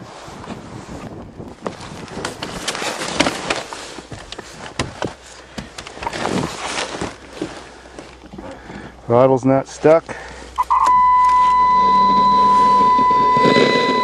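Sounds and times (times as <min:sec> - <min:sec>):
rustling: 0:00.1 - 0:08.9
clicks and knocks inside car: 0:03.2 - 0:08.4.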